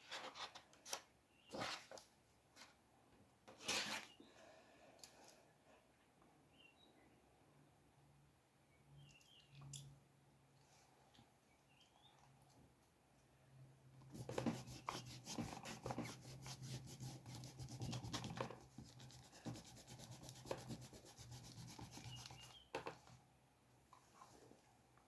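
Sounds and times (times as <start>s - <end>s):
pencil sketching on paper: 14.1s - 22.6s.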